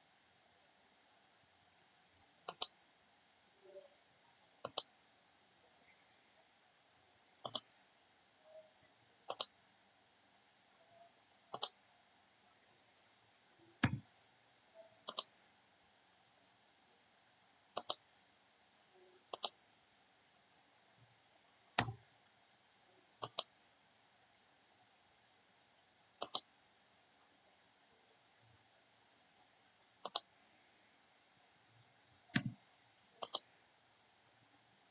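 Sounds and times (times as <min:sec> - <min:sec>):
computer mouse clicking: 0:02.5 - 0:02.8, 0:04.6 - 0:04.9, 0:07.4 - 0:07.7, 0:09.3 - 0:09.6, 0:11.5 - 0:11.8, 0:13.8 - 0:14.0, 0:15.0 - 0:15.4, 0:17.8 - 0:18.0, 0:19.3 - 0:19.6, 0:21.8 - 0:22.0, 0:23.2 - 0:23.5, 0:26.2 - 0:26.5, 0:30.0 - 0:30.3, 0:32.3 - 0:32.6, 0:33.2 - 0:33.5.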